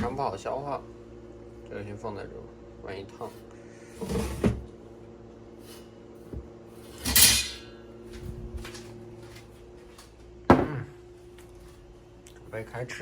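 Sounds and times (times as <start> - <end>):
steady low hum: 0.0 - 13.0
dishes clattering on a table: 10.5 - 10.8.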